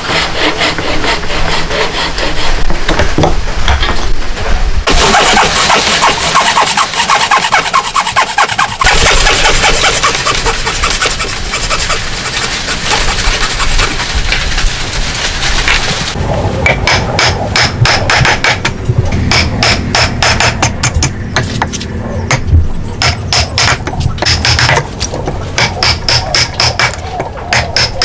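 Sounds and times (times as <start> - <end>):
tool rasping wood: 0.0 - 2.8, 4.9 - 14.6.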